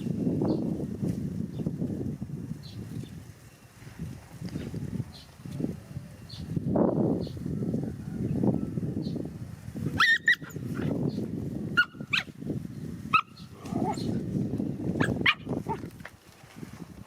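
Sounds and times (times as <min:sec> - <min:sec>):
dog yipping: 0:10.0 - 0:10.9.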